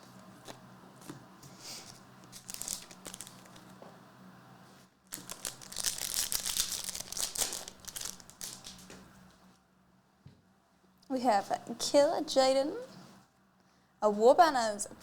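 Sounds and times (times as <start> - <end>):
card pack wrapper crinkling: 1.8 - 3.8, 5.1 - 9.0.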